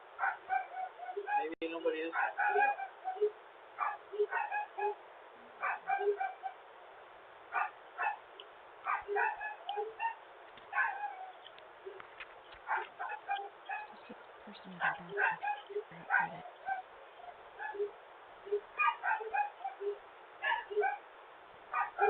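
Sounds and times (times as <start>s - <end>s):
dog barking: 0.2s - 5.0s, 5.6s - 6.6s, 7.5s - 8.2s, 8.8s - 11.4s, 12.6s - 14.1s, 14.7s - 17.9s, 18.7s - 21.0s, 21.7s - 22.0s.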